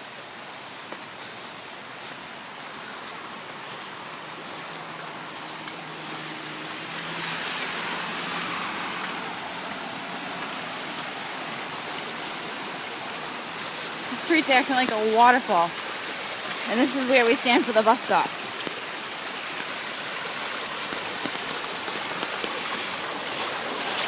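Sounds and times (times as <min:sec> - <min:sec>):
heavy rain pouring: 0:01.6 - 0:24.0.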